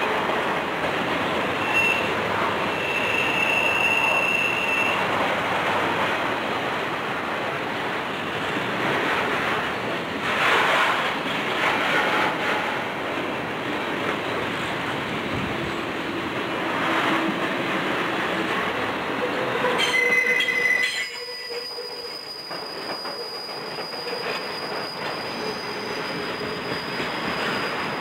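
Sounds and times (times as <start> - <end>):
freight train wheels rumbling: 0.0 - 28.0
train clatter: 0.0 - 28.0
high wheel squeal: 1.5 - 5.2, 19.2 - 28.0.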